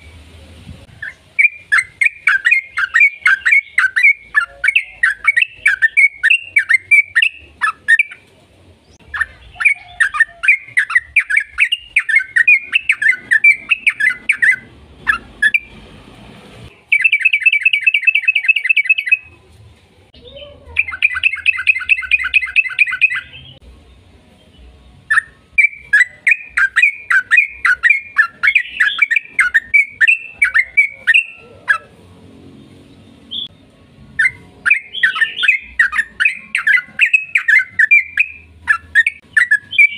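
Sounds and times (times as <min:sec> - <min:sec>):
bird chattering song: 0:00.9 - 0:08.3, 0:08.9 - 0:15.8, 0:16.7 - 0:19.3, 0:20.2 - 0:23.6, 0:24.5 - 0:31.9, 0:34.2 - 0:39.9
fast bird trills: 0:01.0 - 0:08.2, 0:09.1 - 0:15.7, 0:20.8 - 0:23.4, 0:25.1 - 0:31.9, 0:34.2 - 0:39.9.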